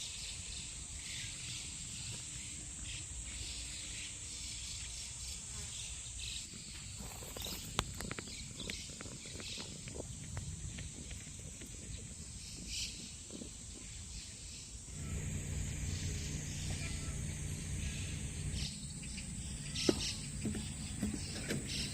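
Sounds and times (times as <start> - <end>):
insects droning: 14.8 - 21.9
bird chirps: 14.9 - 21.9
low hum: 14.9 - 21.9.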